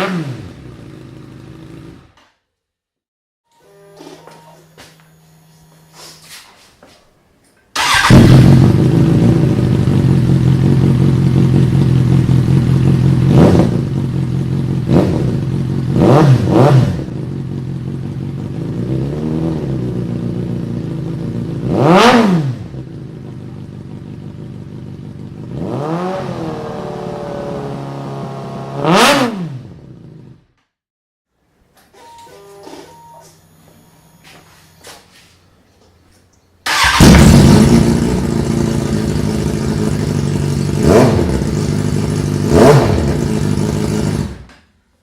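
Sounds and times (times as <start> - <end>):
motorcycle engine revving: 0.0 - 2.2, 7.8 - 30.5, 36.7 - 44.6.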